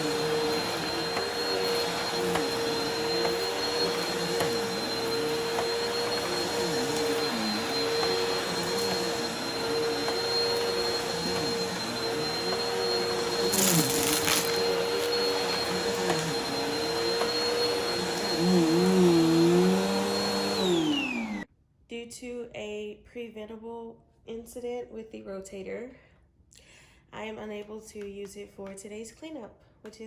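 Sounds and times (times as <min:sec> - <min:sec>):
upright vacuum cleaner running: 0:00.0 - 0:21.5
vacuum motor winding down: 0:00.0 - 0:21.5.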